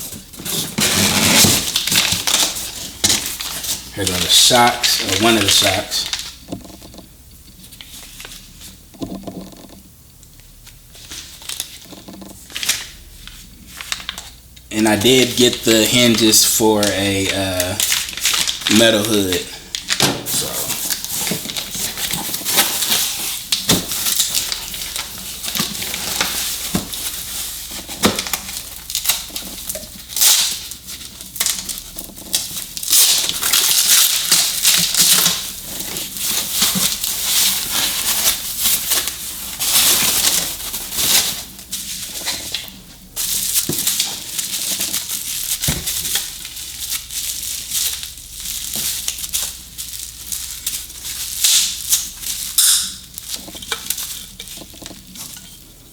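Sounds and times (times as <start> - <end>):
packaging crinkling and rustling: 0.0 - 9.8, 10.6 - 55.9.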